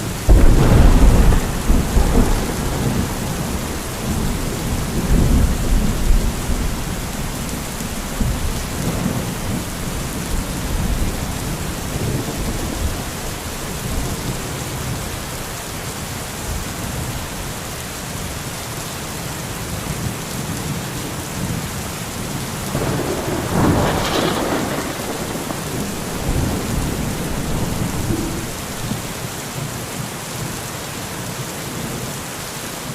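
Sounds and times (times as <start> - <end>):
rolling thunder: 0.0 - 15.4, 22.6 - 29.3
heavy rain: 0.0 - 32.9.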